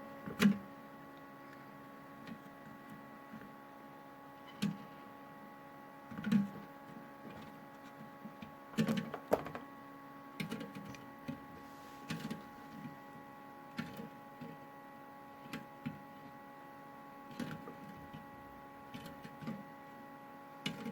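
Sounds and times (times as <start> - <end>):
washing machine motor hum: 0.0 - 20.9
plastic eggs knocking in drum: 8.8 - 9.7.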